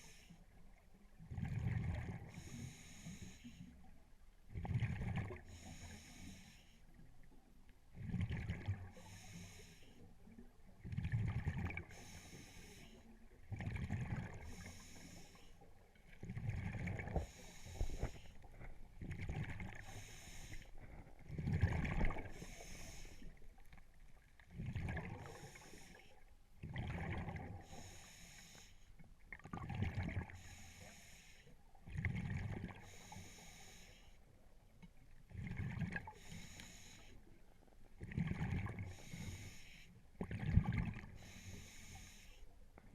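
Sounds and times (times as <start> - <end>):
regulator hiss on inhale: 0.0 - 0.4, 2.3 - 3.8, 5.5 - 6.9, 8.9 - 10.0, 11.9 - 13.1, 14.4 - 15.6, 17.1 - 18.5, 19.8 - 21.1, 22.2 - 23.4, 25.2 - 26.2, 27.6 - 28.9, 30.4 - 31.6, 32.8 - 34.2, 36.1 - 37.4, 38.9 - 40.0, 41.1 - 42.6
gurgling exhaled bubbles: 1.3 - 2.3, 4.6 - 5.4, 8.0 - 8.9, 10.8 - 12.0, 13.5 - 14.7, 16.2 - 20.0, 20.8 - 22.7, 24.5 - 25.8, 26.6 - 27.6, 29.3 - 30.4, 31.9 - 32.8, 38.0 - 39.0, 40.2 - 41.2.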